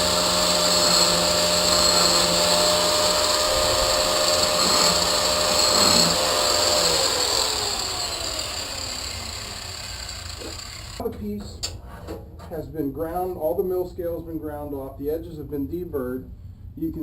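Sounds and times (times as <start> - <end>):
angle grinder grinding steel: 0.0 - 11.0
motor winding down: 0.0 - 11.0.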